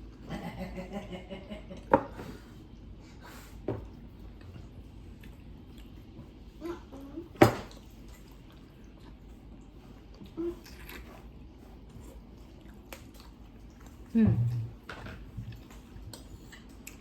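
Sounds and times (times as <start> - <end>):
soft chewing: 1.8 - 17.0
low humming voice: 6.6 - 7.4, 10.2 - 10.9, 14.1 - 14.9.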